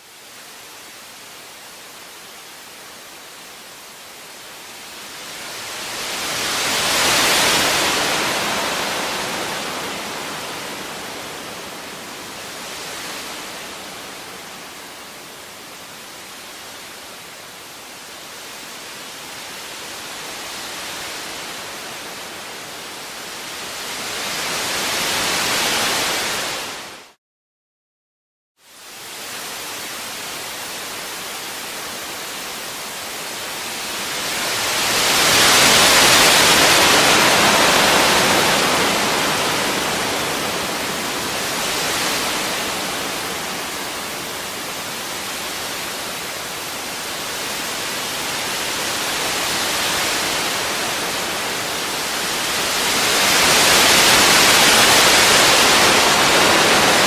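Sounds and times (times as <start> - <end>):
waves washing onto pebble beach: 34.1 - 57.0.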